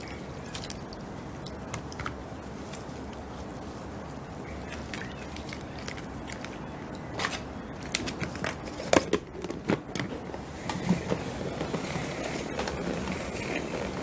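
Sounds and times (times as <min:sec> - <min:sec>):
salad spinner churning: 0:10.2 - 0:14.0.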